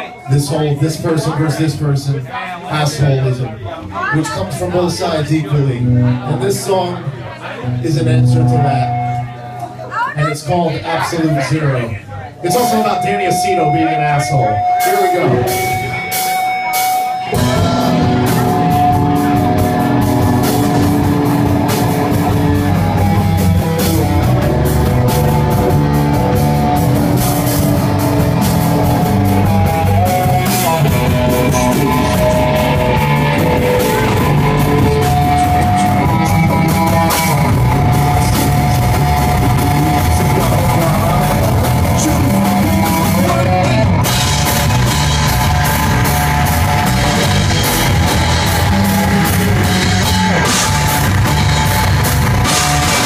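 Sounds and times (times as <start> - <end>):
rock band playing: 2.9 - 53.0.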